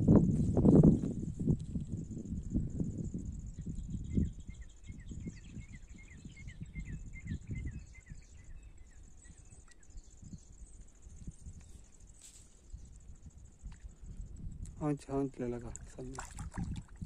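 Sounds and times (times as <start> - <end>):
bird chirping: 3.6 - 11.3.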